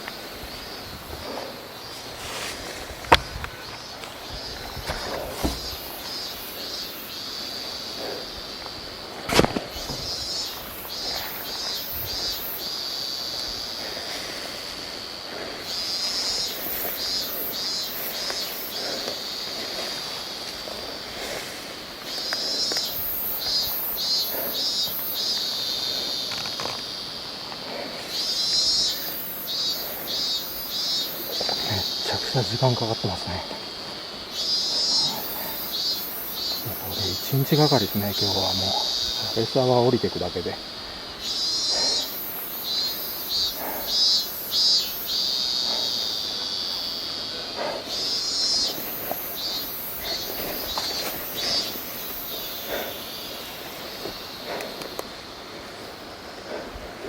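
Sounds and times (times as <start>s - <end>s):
insect singing shrill pulses: 0.0s - 57.0s
soft footsteps: 0.6s - 6.1s.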